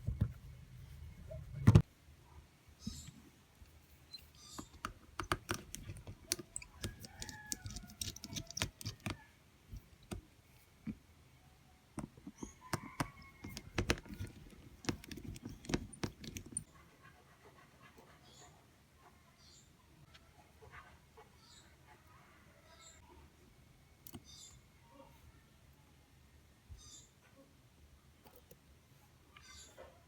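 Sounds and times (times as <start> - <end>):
plastic parts clicking: 4.5 - 11.0, 12.0 - 16.6
hand tools clicking and tapping: 4.6 - 11.0, 12.0 - 16.7.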